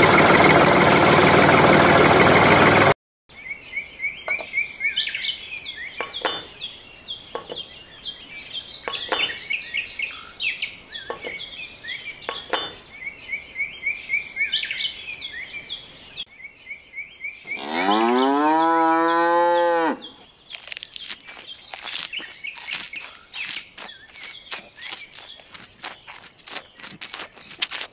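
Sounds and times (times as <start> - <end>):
high chirps like birdsong: 3.3 - 18.5, 19.5 - 27.8
cow mooing: 17.6 - 20.2.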